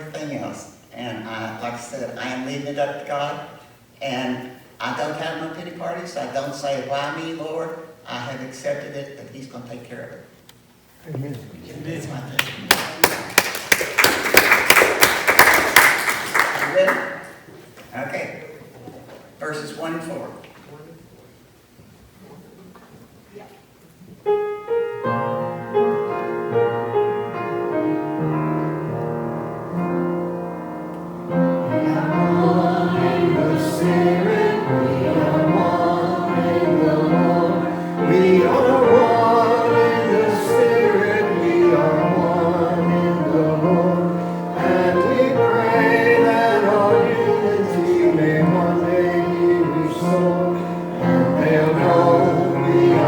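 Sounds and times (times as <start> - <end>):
piano playing: 24.2 - 53.0
congregation singing a hymn: 29.7 - 53.0.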